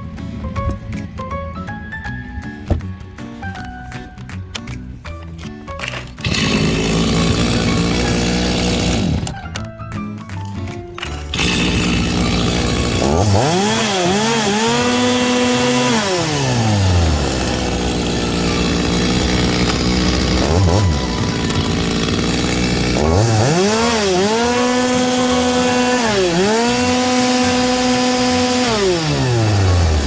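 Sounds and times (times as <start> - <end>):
chainsaw engine revving: 5.8 - 9.4, 11.0 - 30.0.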